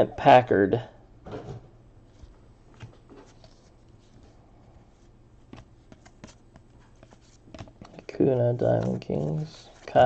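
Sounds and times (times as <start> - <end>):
low steady hum: 0.0 - 10.0
trading cards being flipped: 2.1 - 4.4, 5.0 - 10.0.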